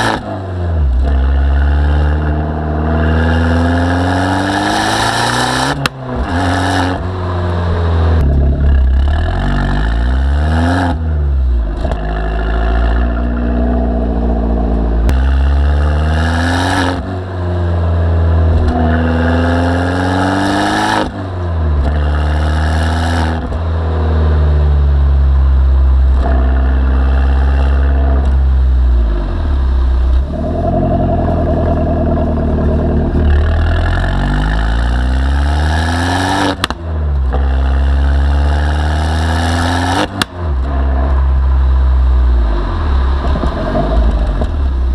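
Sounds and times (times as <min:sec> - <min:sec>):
car engine revving hard: 0:00.0 - 0:11.0, 0:11.8 - 0:17.2, 0:18.4 - 0:21.2, 0:29.2 - 0:41.6.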